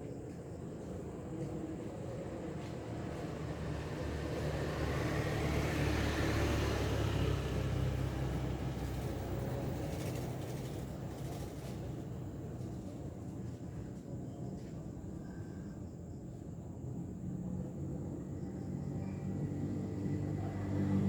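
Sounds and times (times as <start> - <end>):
motor vehicle passing: 3.7 - 10.8, 19.2 - 21.0.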